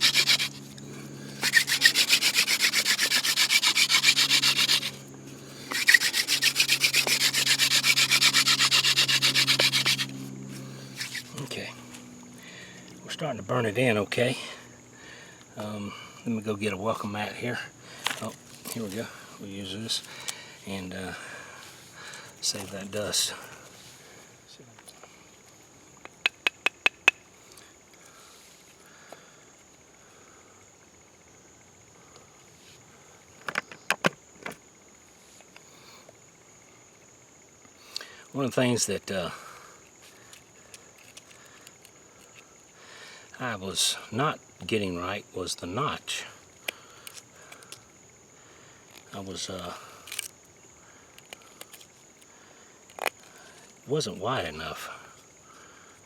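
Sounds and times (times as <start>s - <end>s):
hand drill spindle rubbing on wood: 0.0s - 11.6s
crickets trilling: 0.0s - 56.0s.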